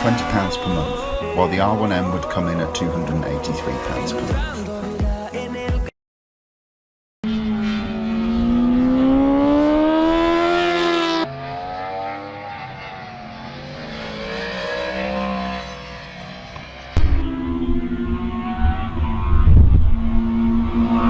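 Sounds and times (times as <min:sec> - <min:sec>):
motorbike engine accelerating: 0:07.2 - 0:21.0.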